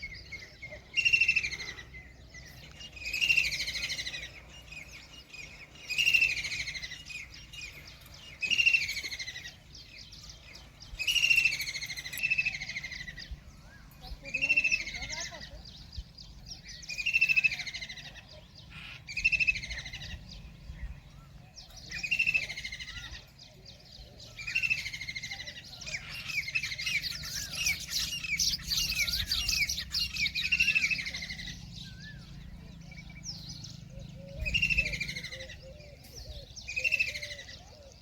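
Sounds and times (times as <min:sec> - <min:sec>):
kingfisher calling: 0:25.9 - 0:32.3.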